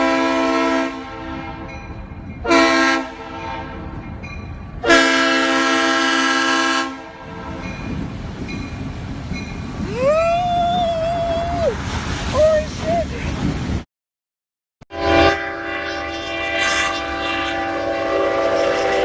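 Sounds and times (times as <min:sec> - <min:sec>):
train horn blasts: 0:00.0 - 0:04.0, 0:04.8 - 0:07.8, 0:14.9 - 0:19.0.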